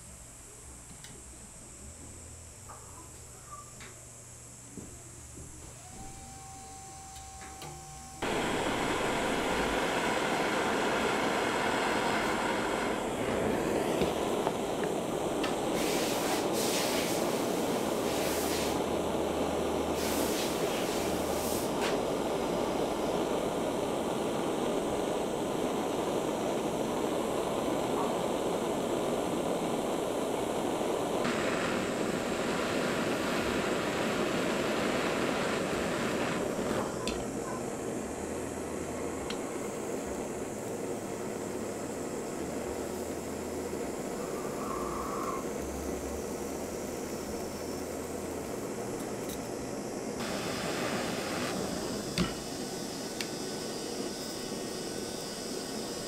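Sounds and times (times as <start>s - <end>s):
power tool running: 5.2s - 27.9s, 50.2s - 56.0s.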